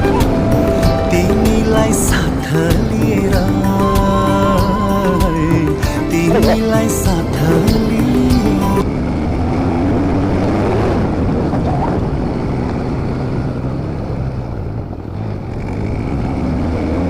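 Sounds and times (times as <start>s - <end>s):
motorcycle engine running: 0.0s - 17.0s
rushing wind noise: 5.7s - 17.0s.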